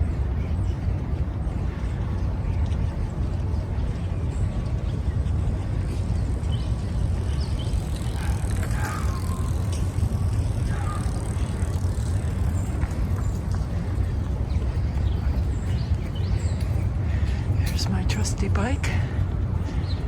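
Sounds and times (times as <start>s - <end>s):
wind buffeting microphone: 0.0s - 20.0s
bicycle tyre noise: 1.6s - 17.6s.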